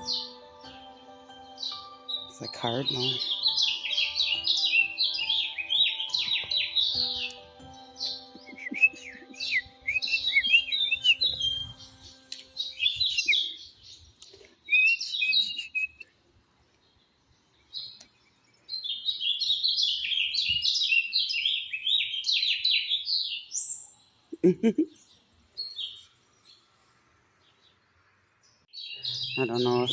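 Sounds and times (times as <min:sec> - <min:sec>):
cardinal singing: 0:00.0 - 0:13.5.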